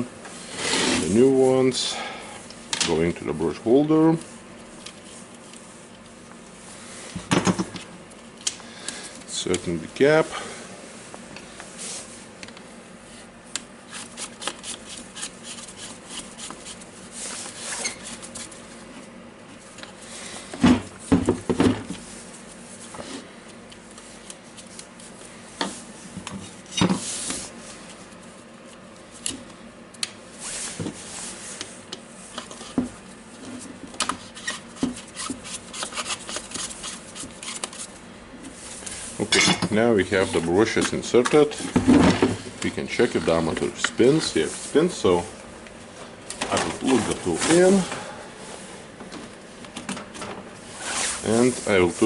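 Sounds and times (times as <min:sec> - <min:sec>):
clicks and scrapes of hand work: 0:34.0 - 0:37.9.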